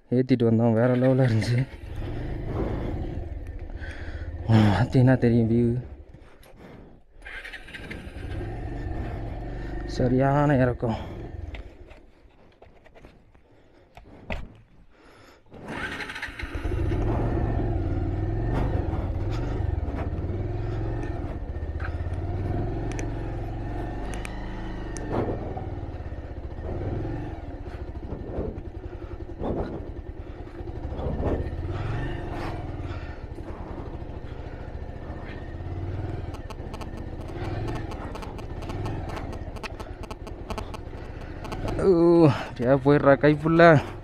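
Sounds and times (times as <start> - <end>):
motorcycle engine rumble: 0.0 - 44.0
clicks: 20.9 - 23.2, 36.1 - 41.9
knocks from riding: 36.3 - 41.8.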